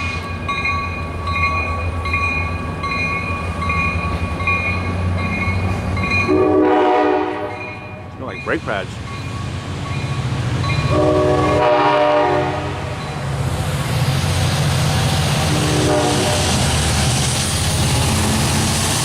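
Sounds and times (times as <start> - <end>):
diesel train engine and wheels rumbling: 0.0 - 19.0
train horn sounding a chord: 6.3 - 8.0, 10.8 - 13.0, 15.5 - 16.6.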